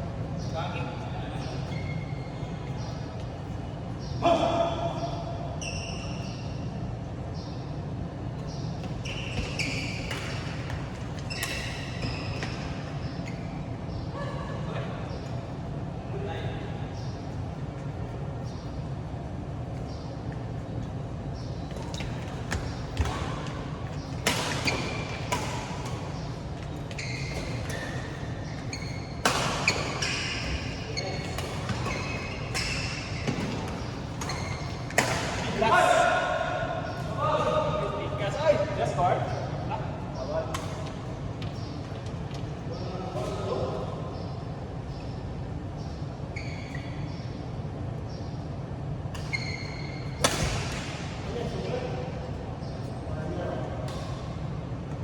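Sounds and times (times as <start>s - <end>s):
low background noise: 0.0s - 55.0s
shoes squeaking on court floor: 0.3s - 14.1s, 16.9s - 53.1s
short high squeaks: 5.6s - 6.5s, 9.0s - 10.7s, 11.3s - 13.6s, 26.9s - 35.0s, 46.3s - 47.2s, 49.2s - 50.3s
racket hitting shuttlecock: 22.4s - 28.6s, 29.2s - 35.6s, 50.2s - 51.2s.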